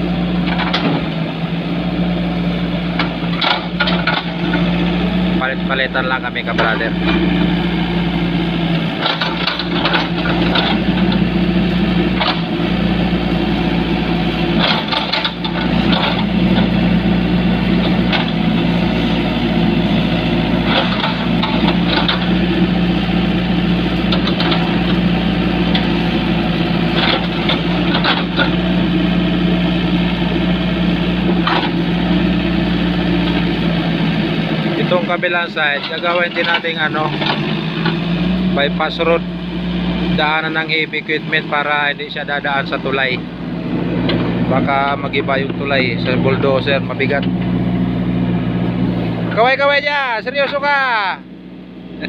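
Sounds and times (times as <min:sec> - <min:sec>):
heavy equipment engine running: 0:00.0 - 0:52.0
short knocks and clanks: 0:00.4 - 0:01.2, 0:03.0 - 0:04.6, 0:08.7 - 0:11.2, 0:12.1 - 0:12.5, 0:14.5 - 0:16.8, 0:17.8 - 0:18.8, 0:20.6 - 0:22.4, 0:24.0 - 0:25.1, 0:26.9 - 0:28.6, 0:31.3 - 0:31.8, 0:35.8 - 0:38.0.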